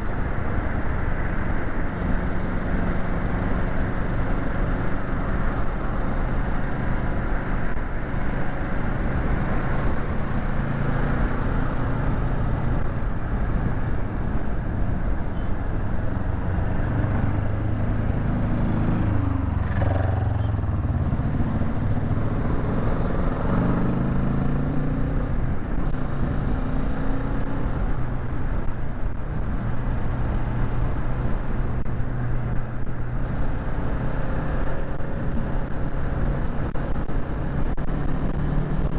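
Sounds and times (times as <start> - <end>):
wind noise: 25.0 - 38.9.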